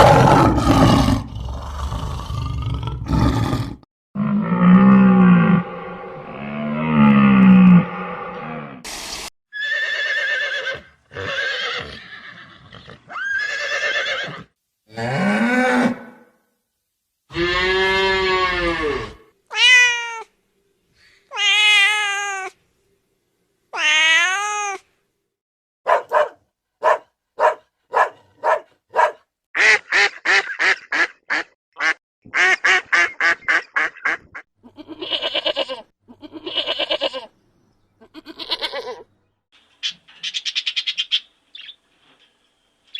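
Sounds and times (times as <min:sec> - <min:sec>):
farm animal calls: 0:38.0 - 0:39.1.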